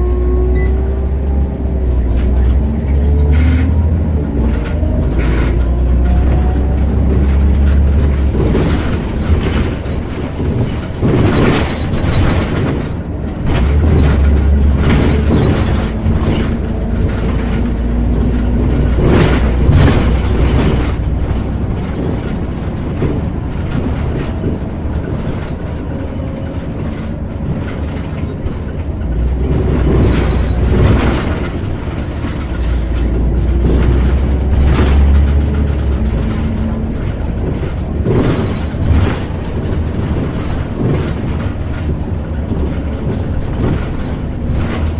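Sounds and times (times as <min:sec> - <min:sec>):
bus engine drone: 0:00.0 - 0:44.9
road noise: 0:00.0 - 0:44.9
interior fittings rattling: 0:01.9 - 0:44.9.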